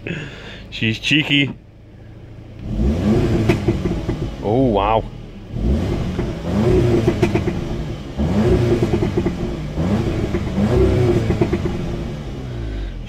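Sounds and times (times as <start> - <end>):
exhaust crackles: 0.0 - 13.0
car engine revving: 1.1 - 13.0.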